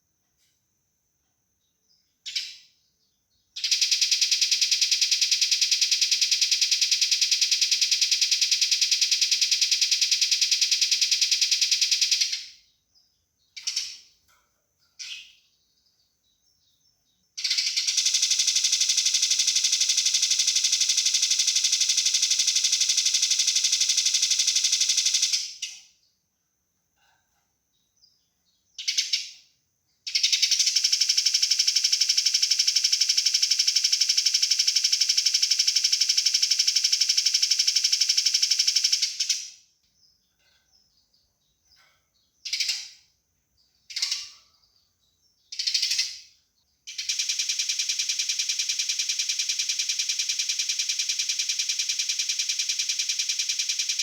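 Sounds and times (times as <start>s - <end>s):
sparrows chattering: 13.0s - 22.0s, 40.0s - 47.2s.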